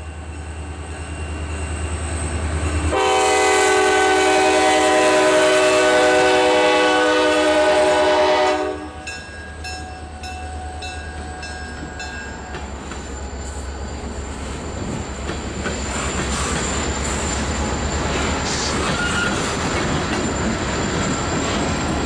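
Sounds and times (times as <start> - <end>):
diesel locomotives rumbling: 0.0 - 22.0
locomotive air horn chord: 2.9 - 9.1.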